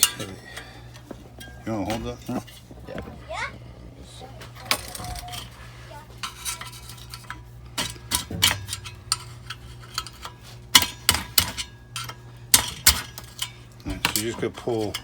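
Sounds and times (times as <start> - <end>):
metal parts clinking and rattling: 4.5 - 5.6, 6.2 - 15.0.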